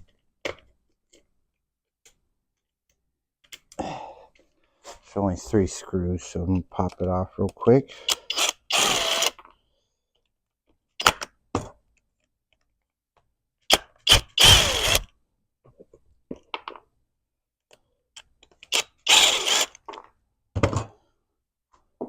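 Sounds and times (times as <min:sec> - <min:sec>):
screwdriver tool bursts: 0:08.0 - 0:09.4, 0:13.7 - 0:15.1, 0:18.6 - 0:19.9.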